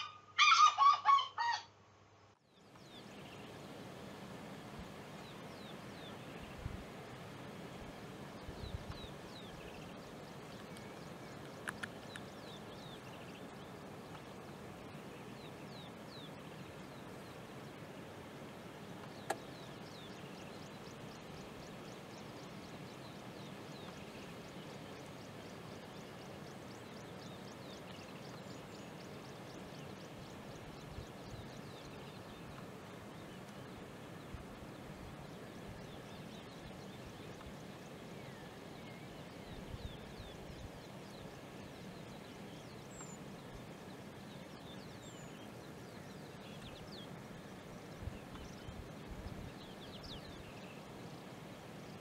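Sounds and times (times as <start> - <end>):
small birds calling: 0.0 - 1.7, 7.7 - 17.9
steady outdoor hiss: 0.0 - 52.0.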